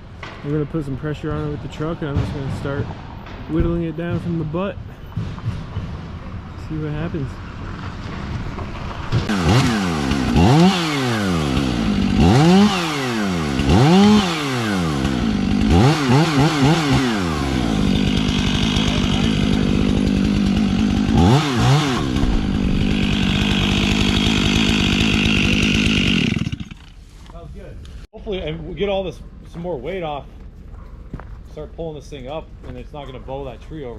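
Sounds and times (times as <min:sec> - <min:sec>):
chainsaw revving and cutting: 0:09.1 - 0:27.0.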